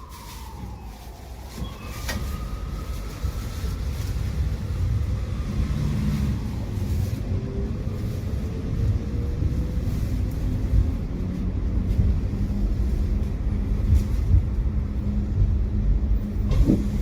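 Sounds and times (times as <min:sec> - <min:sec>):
tram rumbling: 0:00.0 - 0:17.0.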